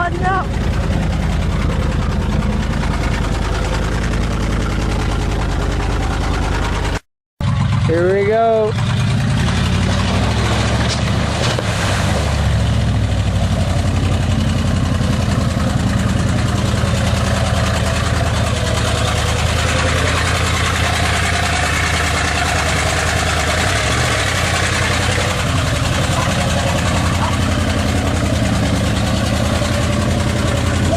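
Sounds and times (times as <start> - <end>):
truck engine running under load: 0.0 - 30.9
churning water and spray hiss: 10.8 - 12.6.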